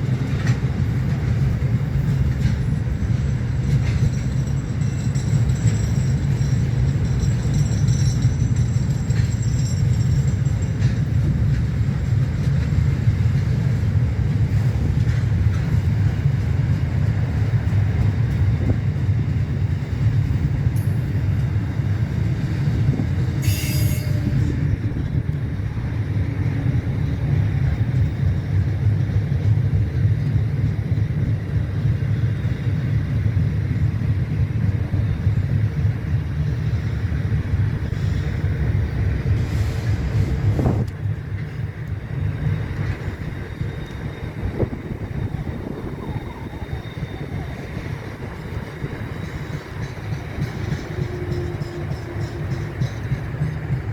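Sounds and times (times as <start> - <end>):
train wheels rumbling on rails: 0.0 - 53.9
high-pitched rail screech: 23.4 - 24.8.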